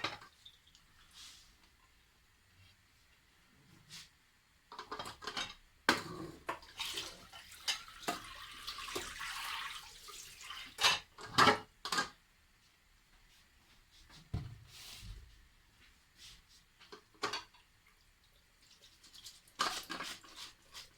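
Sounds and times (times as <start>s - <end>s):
pots and dishes clattering: 0.0s - 0.3s, 4.7s - 6.8s, 16.9s - 17.6s
running water: 6.6s - 10.8s.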